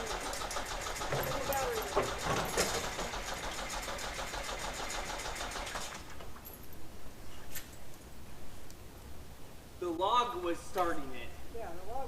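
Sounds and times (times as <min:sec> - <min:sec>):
starter motor cranking engine: 0:00.0 - 0:06.4.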